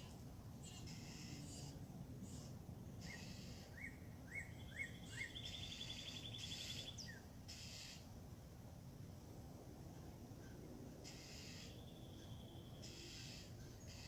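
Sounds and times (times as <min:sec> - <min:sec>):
distant bird calls hiss: 0:00.0 - 0:09.1, 0:09.8 - 0:14.0
bird trill: 0:00.6 - 0:08.0, 0:10.4 - 0:14.0.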